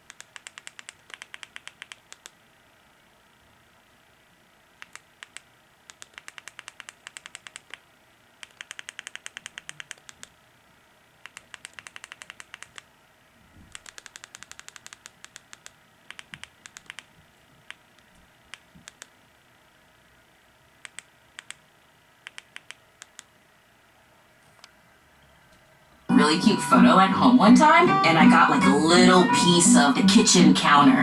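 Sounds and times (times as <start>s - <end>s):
rapid sharp clicking: 0.0s - 2.4s, 4.8s - 7.8s, 8.4s - 10.3s, 11.2s - 12.9s, 13.7s - 17.1s.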